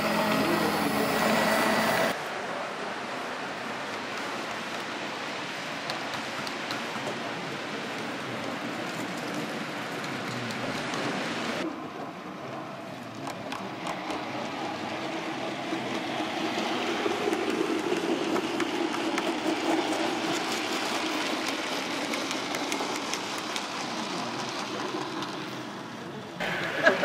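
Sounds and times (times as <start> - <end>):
model train rumbling hum: 0.0 - 27.0
wheels clicking over rail joints: 12.0 - 26.8.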